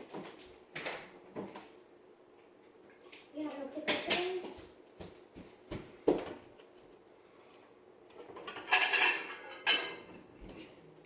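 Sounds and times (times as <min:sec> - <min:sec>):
dishes clattering and clinking: 0:08.1 - 0:10.7.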